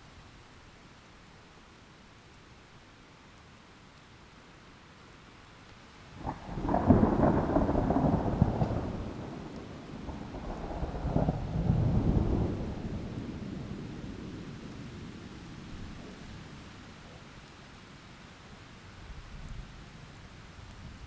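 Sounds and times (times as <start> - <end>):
steady rain: 0.0 - 21.0
thunder crack and rumble: 6.2 - 15.2.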